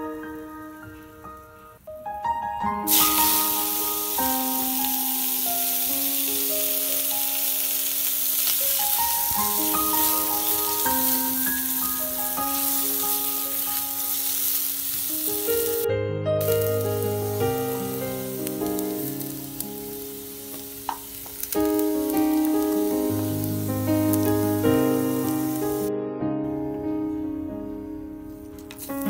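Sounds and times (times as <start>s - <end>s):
piano music: 0.0s - 29.0s
potatoes sizzling in hot oil: 2.9s - 15.8s, 16.4s - 25.9s, 28.7s - 29.0s.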